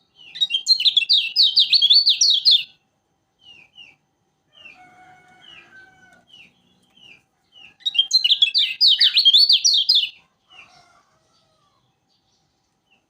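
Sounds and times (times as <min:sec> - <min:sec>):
bird chirping and chattering: 0:00.2 - 0:02.7, 0:06.3 - 0:10.2.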